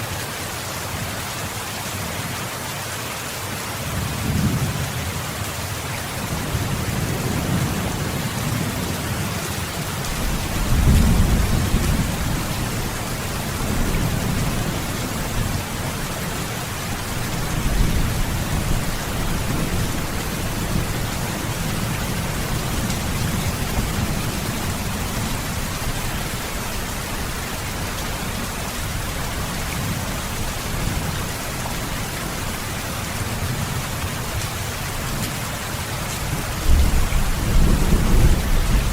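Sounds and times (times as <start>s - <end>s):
heavy rain hissing: 0.0s - 38.9s
rolling thunder: 9.9s - 15.9s, 36.6s - 38.9s.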